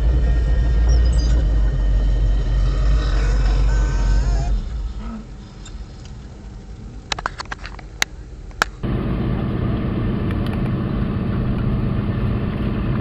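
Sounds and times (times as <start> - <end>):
car engine running: 8.8 - 13.0
sharp clicks: 10.2 - 11.8.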